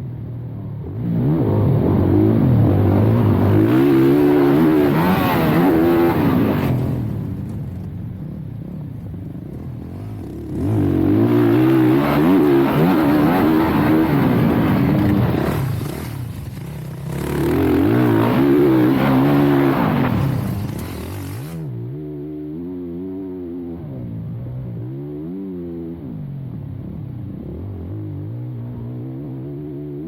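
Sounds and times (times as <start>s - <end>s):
dirt bike engine revving: 1.1s - 21.8s.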